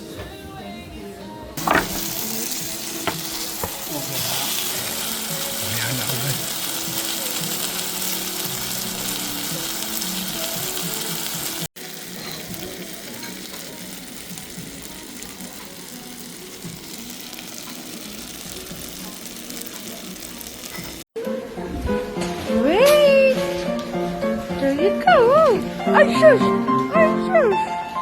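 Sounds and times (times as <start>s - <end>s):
steady hiss: 1.6s - 21.0s.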